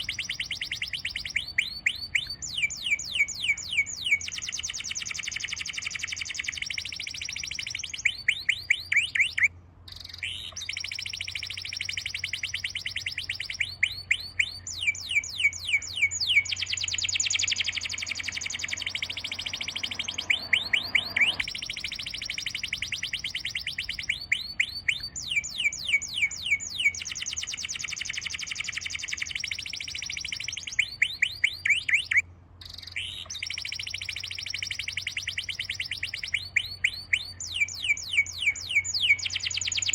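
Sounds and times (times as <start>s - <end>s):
bird song trills: 0.0s - 39.9s.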